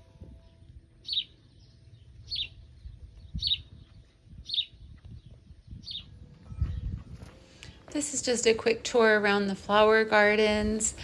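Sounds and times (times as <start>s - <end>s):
bird chirping: 0.2s - 7.0s.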